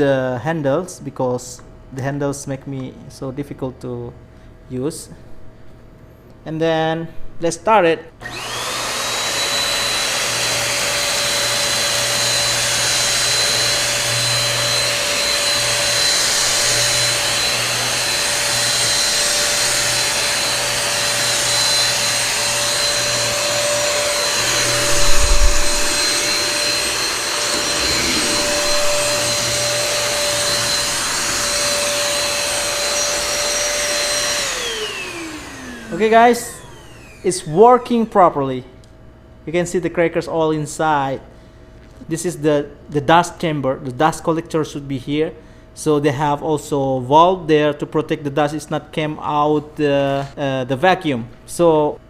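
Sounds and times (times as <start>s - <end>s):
vacuum cleaner whining: 8.2s - 38.4s
loud thump: 24.6s - 31.0s.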